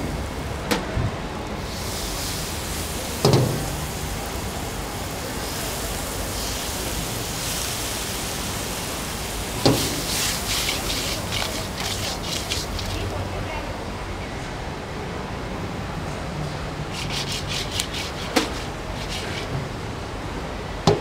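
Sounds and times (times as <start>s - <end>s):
food sizzling in a wok: 1.6s - 13.2s, 16.9s - 19.5s
wok knocking: 9.6s - 13.1s, 17.0s - 19.6s.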